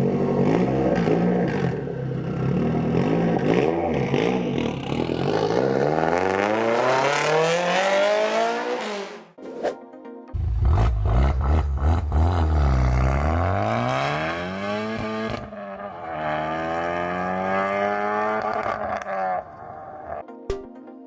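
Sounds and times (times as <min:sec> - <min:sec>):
car engine revving under load: 0:10.4 - 0:19.4.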